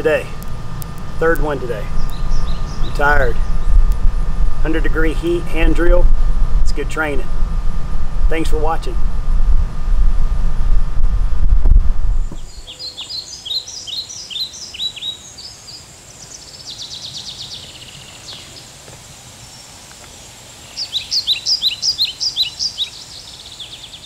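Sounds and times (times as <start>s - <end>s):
songbird singing: 0.0s - 7.2s, 12.1s - 24.0s
fast bird trill: 1.8s - 3.8s, 20.7s - 24.0s.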